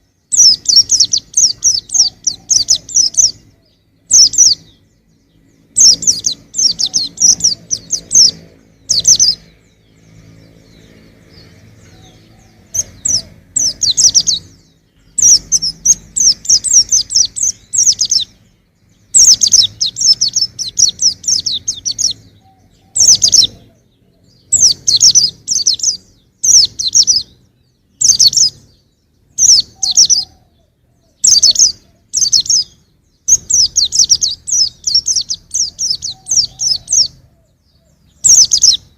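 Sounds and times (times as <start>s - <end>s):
bird twittering: 0.0s - 38.9s.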